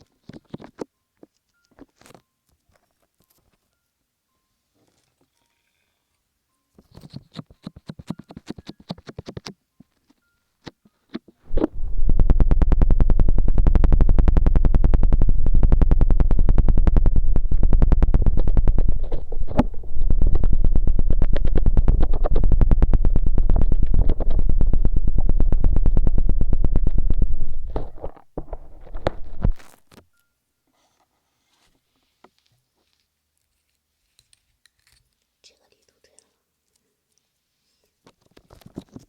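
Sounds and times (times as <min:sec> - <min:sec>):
hands rubbing microphone crackle: 0:11.1 - 0:29.9
heavy low rumble: 0:11.5 - 0:29.6.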